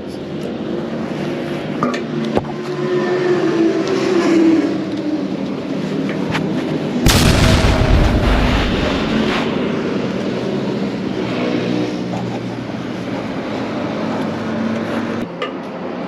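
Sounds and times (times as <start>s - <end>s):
loud exhaust blast: 7.0s - 9.9s.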